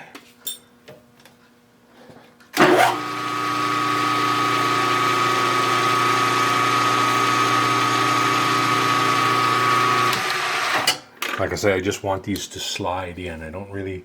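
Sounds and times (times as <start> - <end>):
milling machine motor: 2.6 - 10.9.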